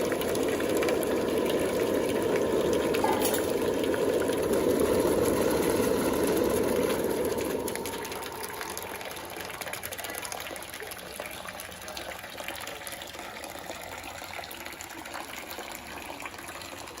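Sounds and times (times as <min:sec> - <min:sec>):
water gushing: 0:00.0 - 0:17.0.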